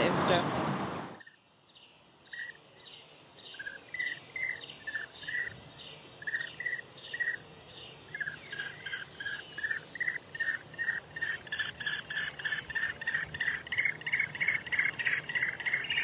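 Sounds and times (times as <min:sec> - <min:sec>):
birds chirping: 0:01.2 - 0:16.0.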